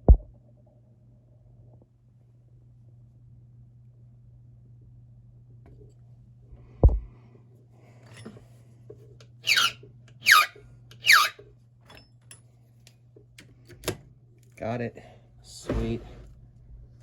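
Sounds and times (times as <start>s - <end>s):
file rasping on metal key: 9.4s - 11.4s
thump: 15.7s - 16.2s.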